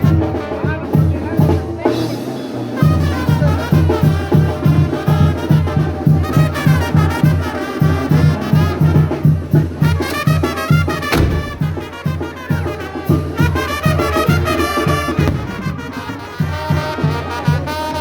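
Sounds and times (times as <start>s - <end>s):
drums: 0.0s - 18.0s
trumpets and trombones: 0.0s - 18.0s
low bass line: 11.1s - 11.9s.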